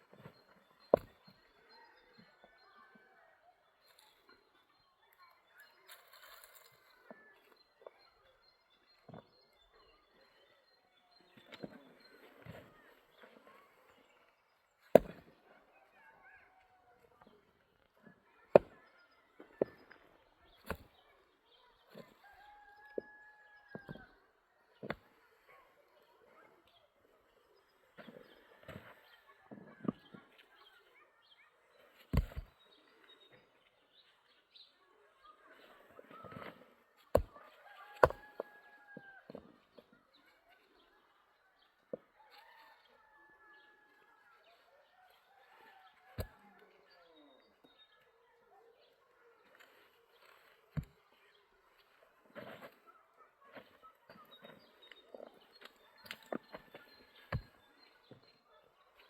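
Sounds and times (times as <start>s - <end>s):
tool striking hard ground: 0.9s - 1.2s, 14.9s - 15.3s, 32.1s - 32.6s, 37.1s - 38.6s, 54.1s - 58.2s.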